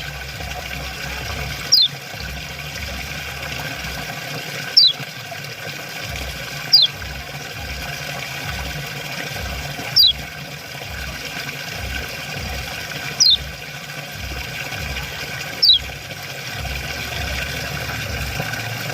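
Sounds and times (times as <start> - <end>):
running water: 0.0 - 18.9
bird chirping calls: 1.6 - 2.0, 4.6 - 5.2, 6.6 - 7.1, 9.8 - 10.3, 12.9 - 13.5, 14.9 - 15.9.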